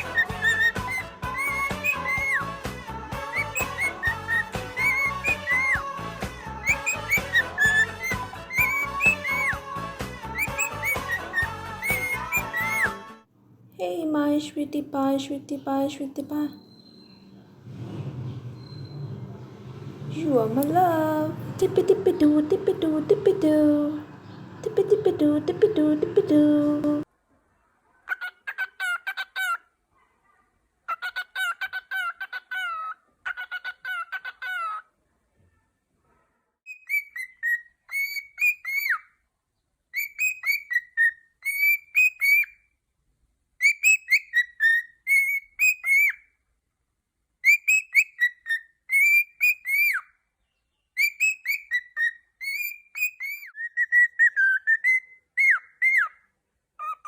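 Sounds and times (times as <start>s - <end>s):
cockatiel singing: 0.0s - 13.1s, 16.1s - 17.5s, 18.6s - 19.4s, 36.7s - 39.1s, 40.0s - 42.6s, 43.6s - 46.2s, 47.4s - 50.1s, 50.9s - 56.2s, 56.8s - 57.0s.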